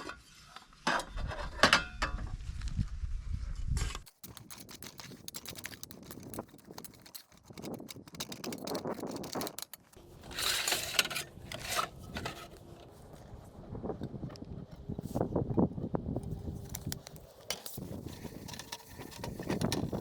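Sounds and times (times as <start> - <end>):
scraping rustle: 3.6 - 13.1.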